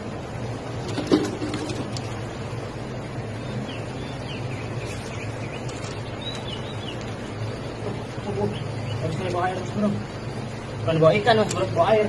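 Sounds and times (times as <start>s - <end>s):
steady background noise: 0.0s - 12.0s
small bird chirping: 3.3s - 9.9s.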